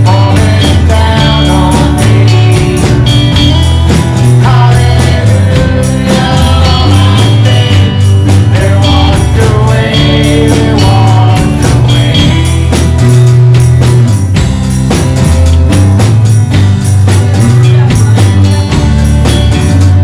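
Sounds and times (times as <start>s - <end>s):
person singing: 0.0s - 13.4s
bass line: 0.0s - 20.0s
jingling percussion: 0.0s - 20.0s.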